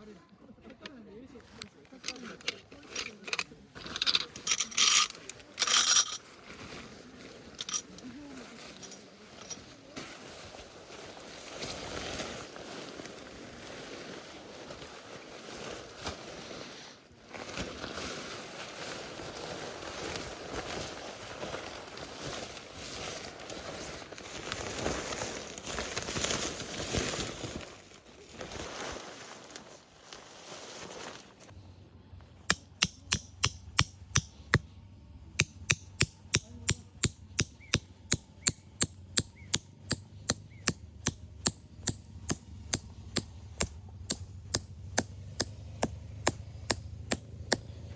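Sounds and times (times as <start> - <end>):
uneven rustling noise: 1.9 - 31.5.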